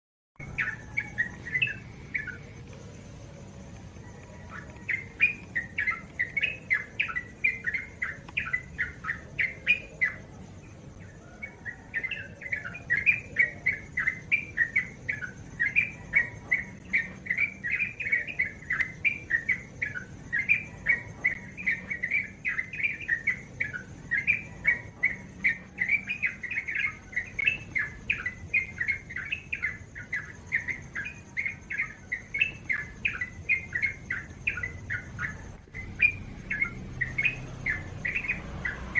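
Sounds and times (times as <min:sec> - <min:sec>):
bird singing bubbling chirps: 0:00.4 - 0:38.9.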